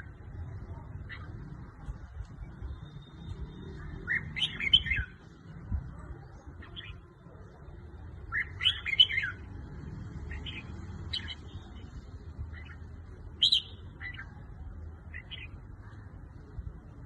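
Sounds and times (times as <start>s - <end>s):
bird warbling song: 12.5s - 14.4s.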